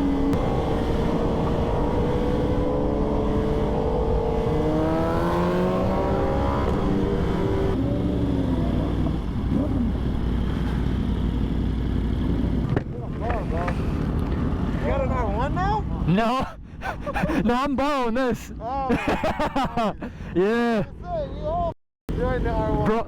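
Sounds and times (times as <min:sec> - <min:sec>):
wind rumble on microphone: 0:00.0 - 0:14.8
sport bike engines accelerating: 0:00.0 - 0:16.1.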